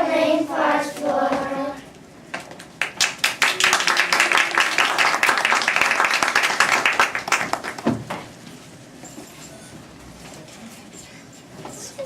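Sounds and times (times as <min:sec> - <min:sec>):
audience clapping: 0:02.8 - 0:08.0.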